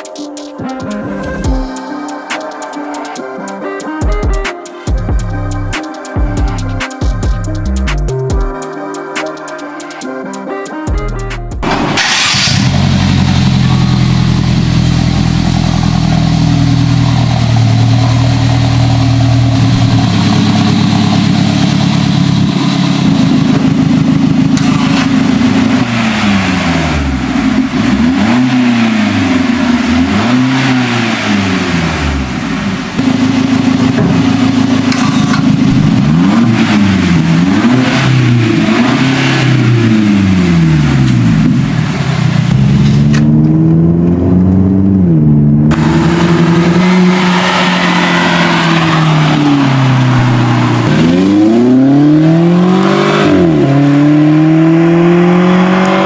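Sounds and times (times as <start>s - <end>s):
car engine revving: 11.6s - 56.0s.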